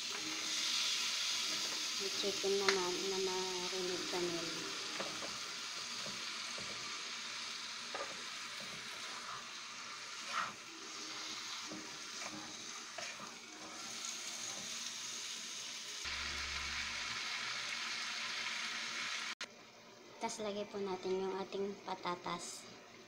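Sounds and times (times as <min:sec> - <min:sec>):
chicken sizzling in oil: 0:00.0 - 0:19.5
spatula scraping a wok: 0:07.9 - 0:14.9.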